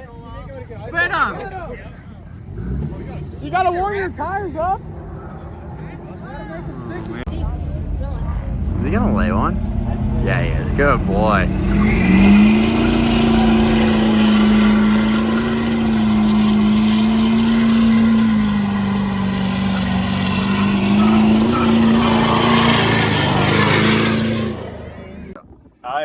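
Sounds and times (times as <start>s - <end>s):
tyres spinning: 8.2s - 25.4s
engine revving high: 8.4s - 25.4s.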